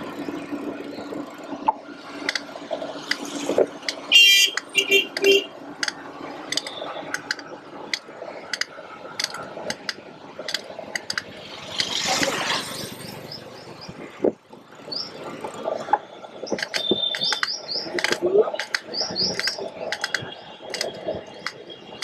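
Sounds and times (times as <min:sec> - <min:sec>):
bird chirps: 0:16.4 - 0:18.1, 0:18.9 - 0:20.4.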